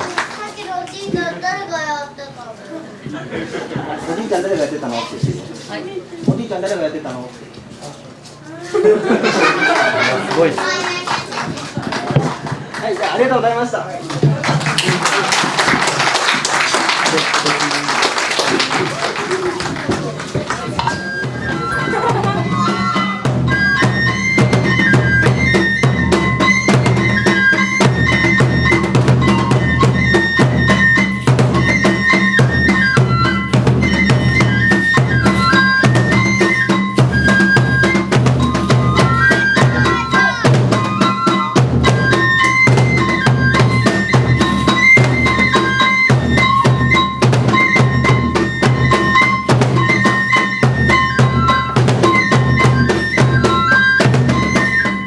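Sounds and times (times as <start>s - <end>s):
fast drum strokes: 14.0s - 55.0s
bamboo flute melody: 15.1s - 55.0s.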